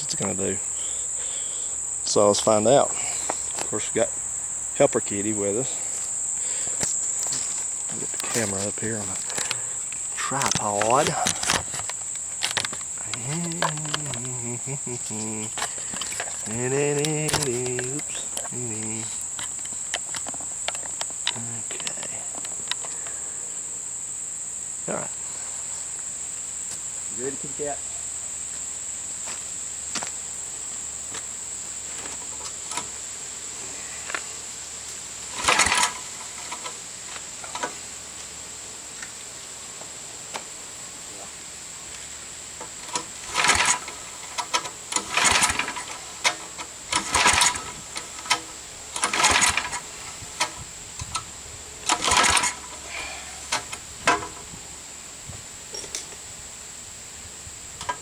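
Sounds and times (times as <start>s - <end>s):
mower engine cranking: 0.0s - 23.3s, 32.0s - 33.0s, 35.3s - 38.0s, 42.1s - 56.3s, 57.6s - 58.0s
crickets chirping: 0.0s - 58.0s.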